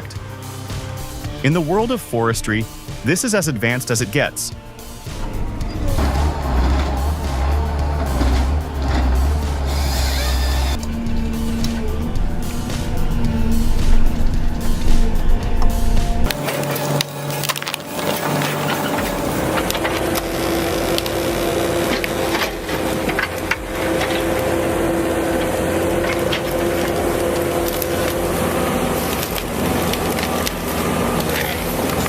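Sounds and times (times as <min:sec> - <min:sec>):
engine running steadily: 0:00.0 - 0:32.0
wood cracking and splintering: 0:16.3 - 0:32.0.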